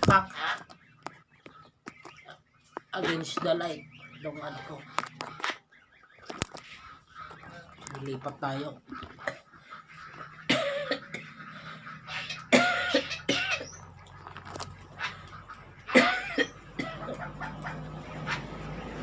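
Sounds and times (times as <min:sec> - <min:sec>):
man coughing hard: 0:10.5 - 0:11.3, 0:12.5 - 0:13.7, 0:15.9 - 0:17.1.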